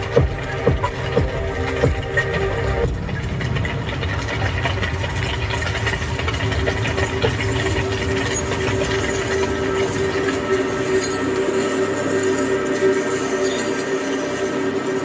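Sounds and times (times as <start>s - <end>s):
low engine-like rumble: 0.0s - 10.6s
scattered clicks and rattles: 0.0s - 15.0s.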